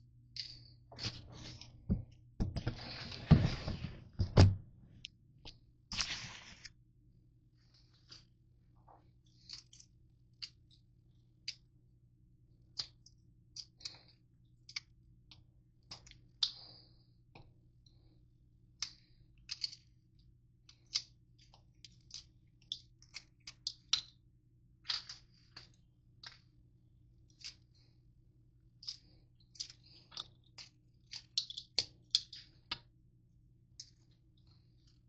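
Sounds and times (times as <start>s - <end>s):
granola bars being crushed: 28.8s - 32.8s.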